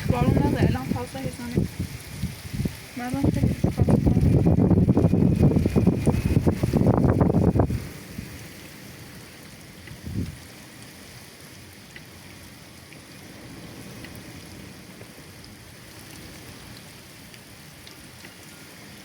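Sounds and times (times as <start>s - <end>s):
steady rain falling: 0.0s - 19.0s
faint drip ticks: 11.9s - 12.2s, 13.9s - 14.2s, 15.0s - 18.8s.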